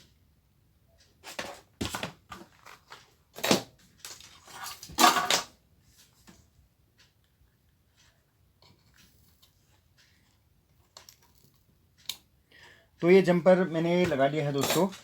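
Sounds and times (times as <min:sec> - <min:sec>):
hand tools clattering and scraping: 0:04.4 - 0:05.5, 0:14.0 - 0:15.0.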